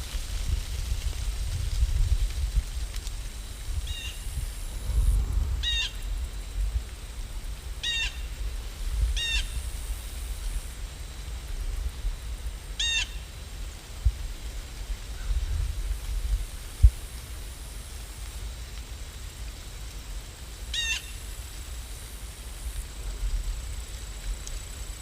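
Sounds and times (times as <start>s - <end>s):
steady rain: 0.0s - 25.0s
low rumble: 3.7s - 10.6s
bird calling: 5.6s - 6.1s.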